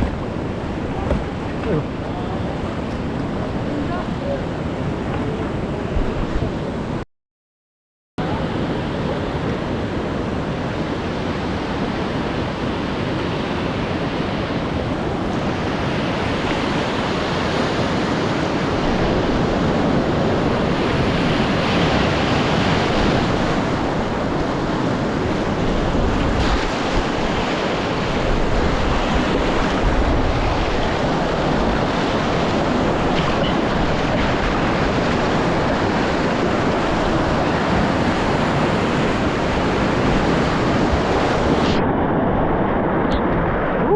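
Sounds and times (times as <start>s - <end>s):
wind buffeting microphone: 0.0s - 7.0s, 8.2s - 43.9s
whitewater rapids rushing: 15.4s - 41.8s.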